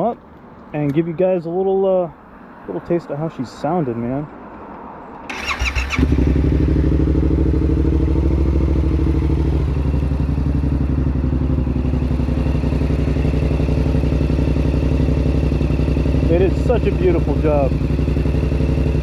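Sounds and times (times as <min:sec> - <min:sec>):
electric starter cranking: 0:05.3 - 0:06.2
motorcycle engine idling: 0:05.3 - 0:19.0.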